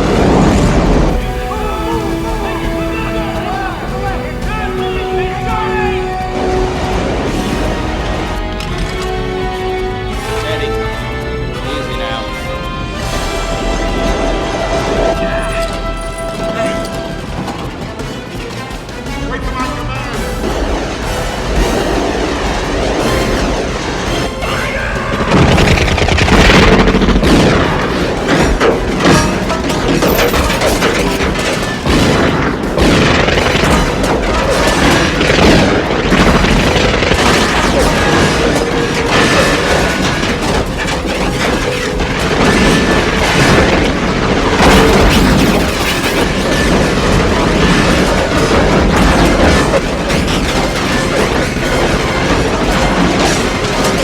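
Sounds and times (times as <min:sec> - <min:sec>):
booming crash effects: 0:00.0 - 0:18.2, 0:19.8 - 0:54.0
dramatic orchestral film score: 0:00.0 - 0:54.0
grinding noise: 0:00.0 - 0:54.0
loud hit: 0:20.4 - 0:54.0.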